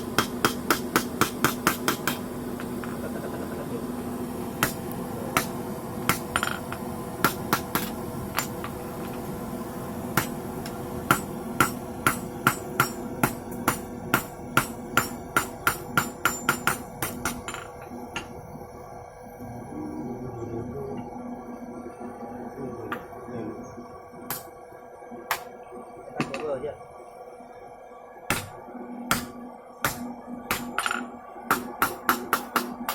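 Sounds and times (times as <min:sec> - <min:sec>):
hammer ringing on anvil: 0:11.1 - 0:18.3.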